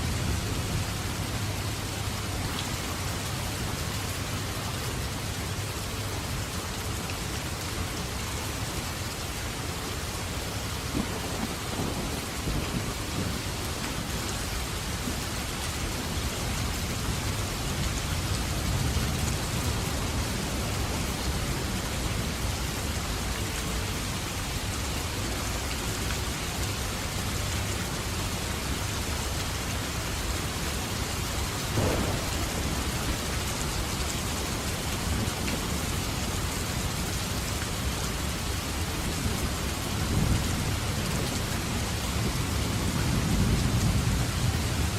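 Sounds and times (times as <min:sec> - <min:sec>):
heavy rain pouring: 0:00.0 - 0:44.9
rolling thunder: 0:10.8 - 0:15.3, 0:31.7 - 0:36.3.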